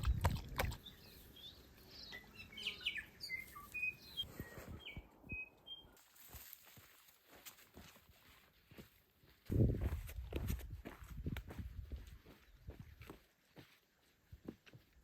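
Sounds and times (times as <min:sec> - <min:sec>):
birds chirping and whistling: 0:00.8 - 0:06.0.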